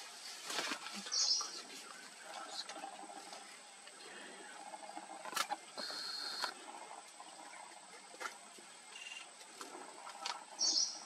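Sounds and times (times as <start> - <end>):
high-pitched bird calls: 8.9 - 9.3, 10.6 - 11.0.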